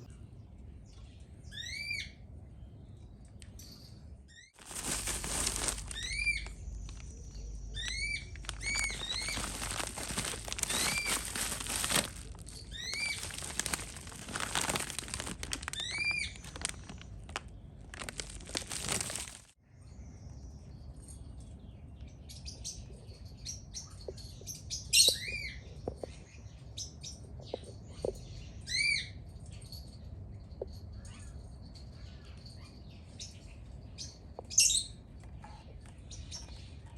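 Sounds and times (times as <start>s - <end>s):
birds chirping: 0.0s - 20.8s.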